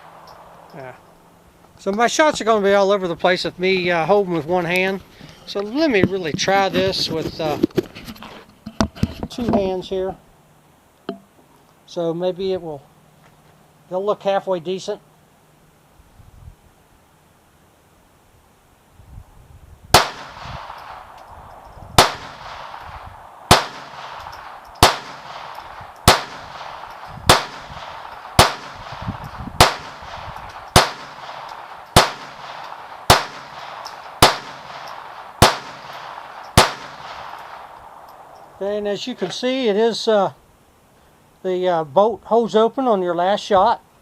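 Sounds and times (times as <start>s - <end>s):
pistol shots: 19.9s - 21.3s, 22.0s - 38.4s.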